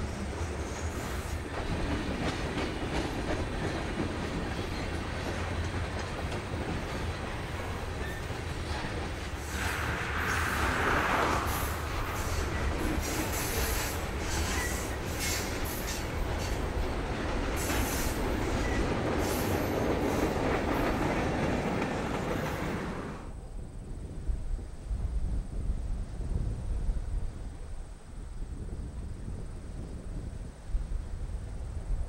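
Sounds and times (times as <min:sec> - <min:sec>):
freight train rumbling past: 0:00.0 - 0:32.0
wheels clicking over rail joints: 0:00.4 - 0:22.9
wheel squeal: 0:12.2 - 0:15.5.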